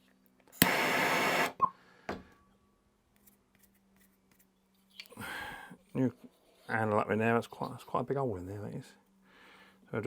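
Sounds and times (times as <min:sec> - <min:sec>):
gas torch hissing: 0:00.6 - 0:01.5
gas torch lighting click: 0:00.6 - 0:01.5.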